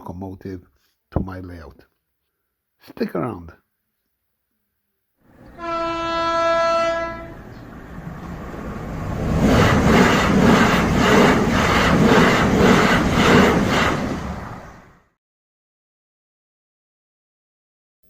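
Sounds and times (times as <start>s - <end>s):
train horn: 5.4s - 7.7s
train wheels clickety-clack: 9.2s - 14.3s.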